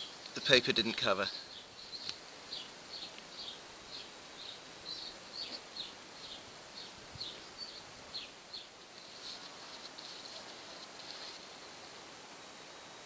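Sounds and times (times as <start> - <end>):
faint background hiss: 0.0 - 13.0
bird chirping: 1.3 - 8.8.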